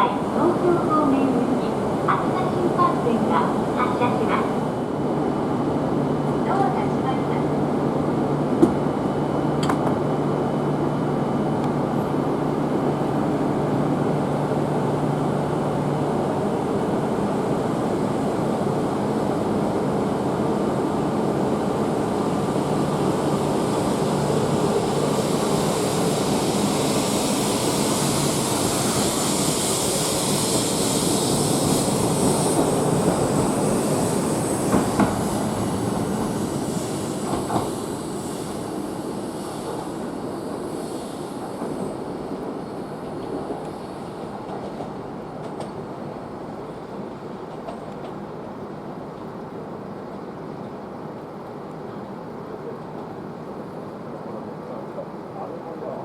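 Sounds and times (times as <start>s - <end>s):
train wheels rumbling: 11.6s - 48.4s
high hiss: 22.2s - 46.4s.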